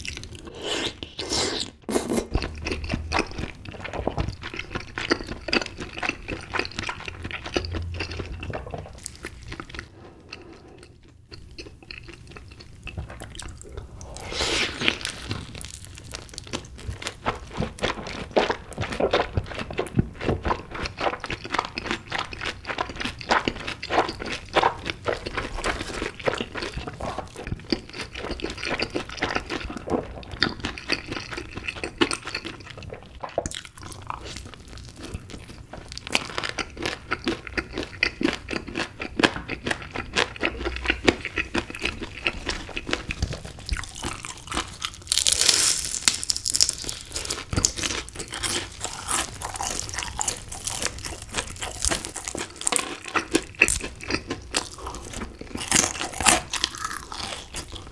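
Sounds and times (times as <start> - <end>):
wet chewing mouth sounds: 0.0 - 57.9
crunching of crisp chicken coating: 11.5 - 57.9.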